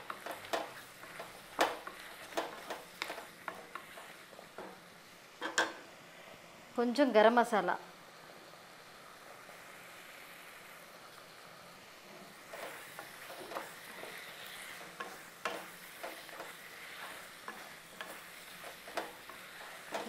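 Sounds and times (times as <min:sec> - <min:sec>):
wooden spatula scraping a pan: 0:00.0 - 0:04.8, 0:12.1 - 0:20.0
food sizzling in a pan: 0:00.0 - 0:20.0.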